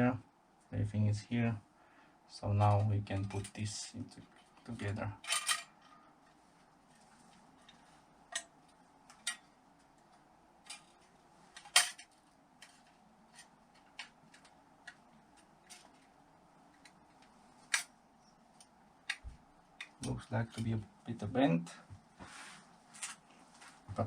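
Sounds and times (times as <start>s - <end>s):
metal engine parts clinking: 5.2s - 5.8s.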